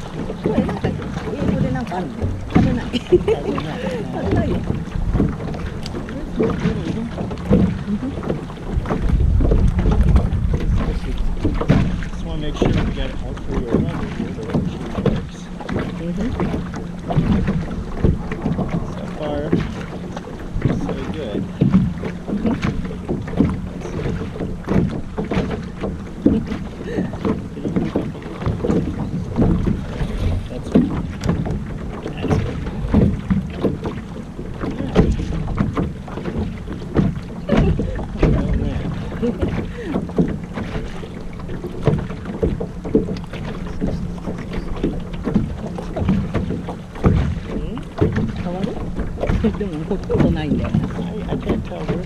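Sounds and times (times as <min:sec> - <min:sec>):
low hum: 0:00.0 - 0:52.0
water splashing against hull: 0:00.0 - 0:52.0
wind on microphone: 0:00.0 - 0:52.0.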